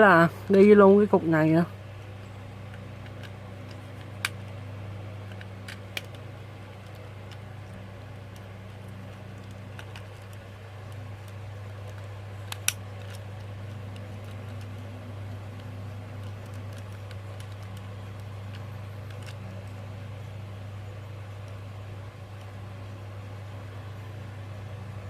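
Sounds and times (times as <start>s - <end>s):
steady low hum: 0.0s - 25.0s
plastic toy parts clicking: 2.7s - 4.6s, 5.2s - 19.9s.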